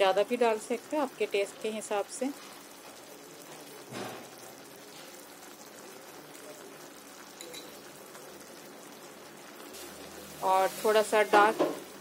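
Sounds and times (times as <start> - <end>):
vegetables sizzling in a pan: 0.0 - 12.0
small metal clink: 7.4 - 7.8.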